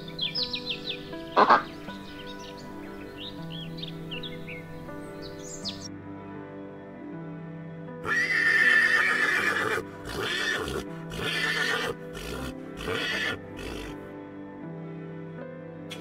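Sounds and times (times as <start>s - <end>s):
background music: 0.0s - 16.0s
horse whinnying: 8.0s - 14.1s.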